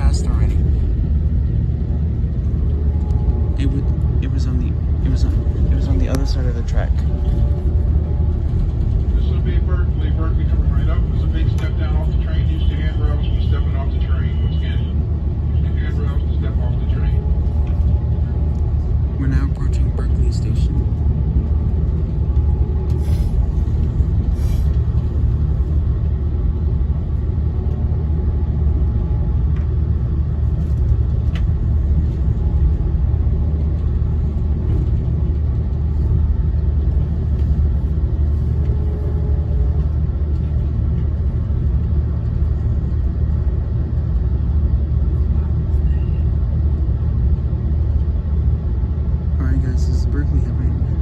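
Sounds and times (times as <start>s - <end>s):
train rumble inside coach: 0.0s - 51.0s.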